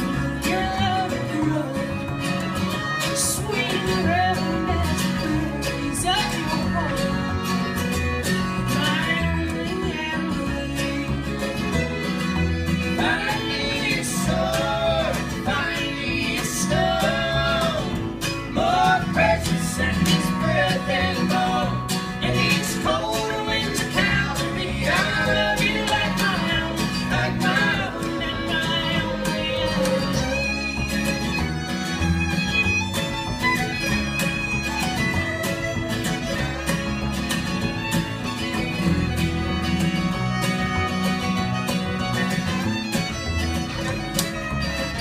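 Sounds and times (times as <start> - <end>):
acoustic string band playing: 0.0 - 45.0.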